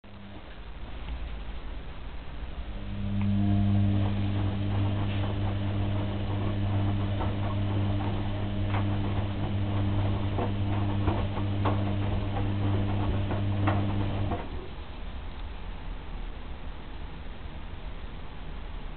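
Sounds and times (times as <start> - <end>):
washing machine motor humming: 0.0 - 0.8, 2.6 - 14.8.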